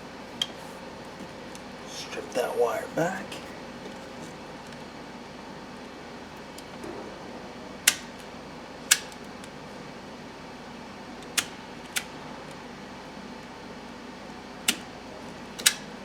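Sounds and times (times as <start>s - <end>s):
fan hum: 0.0s - 16.0s
wire strippers clicking: 8.9s - 9.2s, 15.6s - 15.9s.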